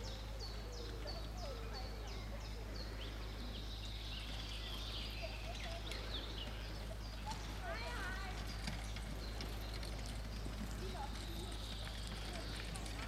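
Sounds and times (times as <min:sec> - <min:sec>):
small bird singing: 0:00.0 - 0:13.0.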